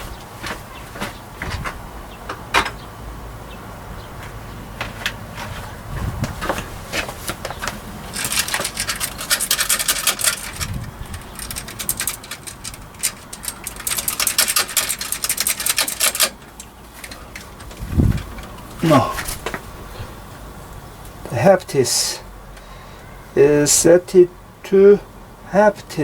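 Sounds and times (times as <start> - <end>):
metallic chain clicking and scraping: 8.0 - 19.4.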